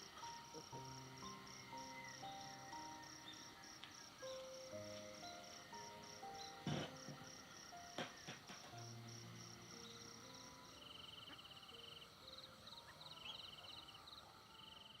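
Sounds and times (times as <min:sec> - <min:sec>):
insects chirping in trills: 0:00.0 - 0:15.0.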